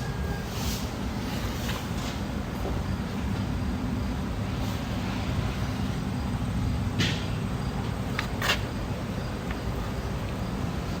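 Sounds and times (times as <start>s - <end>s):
short scuffing sounds: 8.2s - 8.7s.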